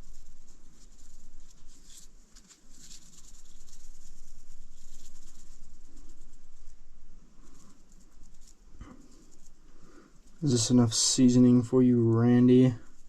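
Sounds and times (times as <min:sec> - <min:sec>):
food preparation rustling: 0:00.0 - 0:13.0
hissy scrapes and shakes: 0:00.0 - 0:13.0
low steady hum: 0:00.0 - 0:13.0.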